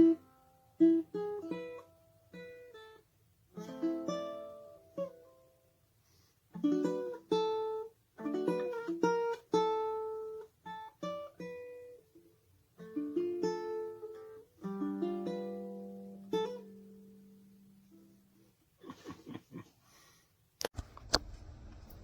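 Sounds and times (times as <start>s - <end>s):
ukulele strumming chords: 0.0s - 3.0s, 3.6s - 5.5s, 6.6s - 12.1s, 12.8s - 18.3s.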